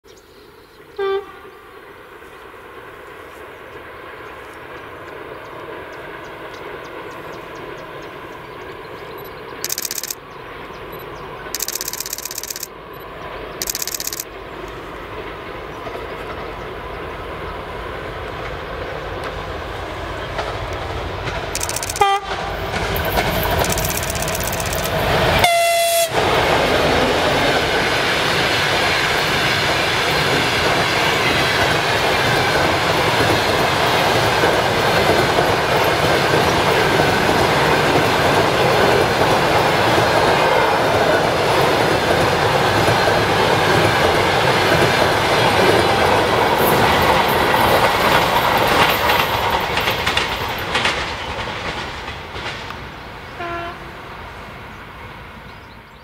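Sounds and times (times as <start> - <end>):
diesel locomotive running: 0.6 - 56.0
locomotive horn blasts: 1.0 - 1.6, 22.0 - 22.5, 25.4 - 26.3, 53.4 - 53.9
high-pitched bursts: 9.6 - 10.2, 11.6 - 12.7, 13.6 - 14.2, 21.6 - 22.2, 23.5 - 25.1
wheels clickety-clack: 9.6 - 10.2, 11.4 - 12.7, 13.3 - 14.3, 15.1 - 16.8, 20.1 - 25.5, 26.2 - 52.9.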